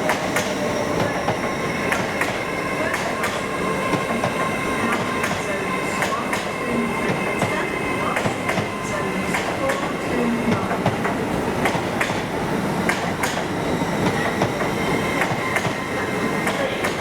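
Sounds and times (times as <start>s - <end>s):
train rumble with high whine: 0.0s - 17.0s
train wheels clicking over rail joints: 8.2s - 15.8s.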